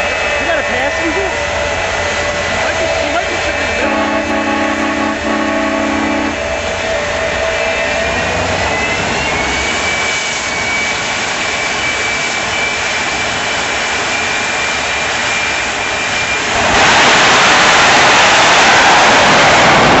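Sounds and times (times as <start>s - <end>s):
turbine engine whine and roar: 0.0s - 20.0s.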